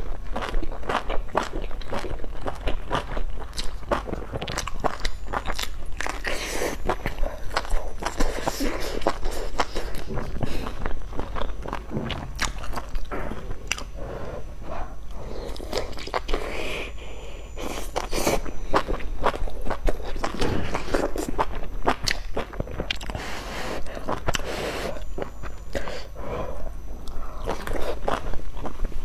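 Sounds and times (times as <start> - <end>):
wet chewing mouth sounds: 0.0 - 29.0.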